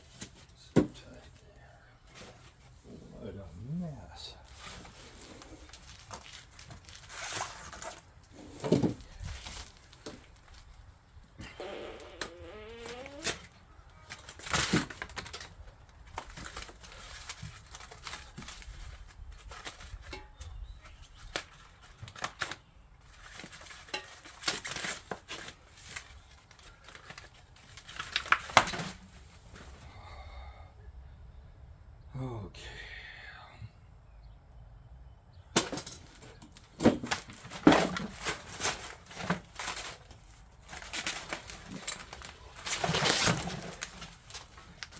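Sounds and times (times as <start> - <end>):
packing material crinkling: 4.4 - 29.2, 36.6 - 44.9.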